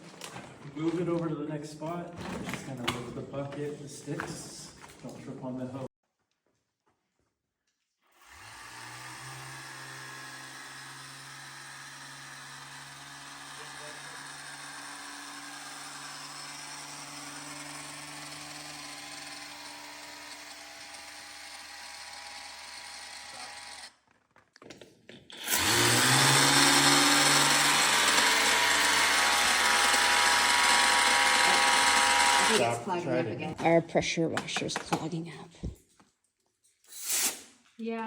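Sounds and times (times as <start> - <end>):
pressure washer motor and pump whir: 8.2 - 23.9, 25.3 - 32.8.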